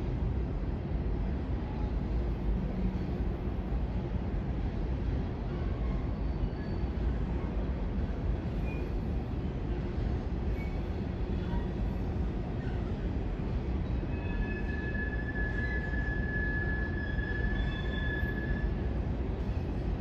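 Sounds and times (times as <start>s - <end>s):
train cars rumbling on track: 0.0s - 20.0s
high wheel squeal: 13.9s - 18.8s.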